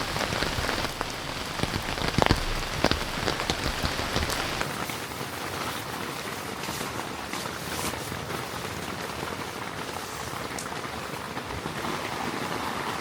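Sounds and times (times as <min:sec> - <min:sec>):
heavy rain falling: 0:00.0 - 0:04.8.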